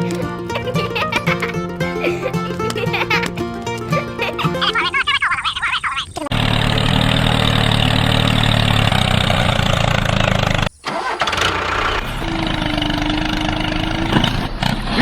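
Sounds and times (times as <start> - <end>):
quiet engine hum: 0.0 - 14.8
tractor engine running: 6.3 - 15.0.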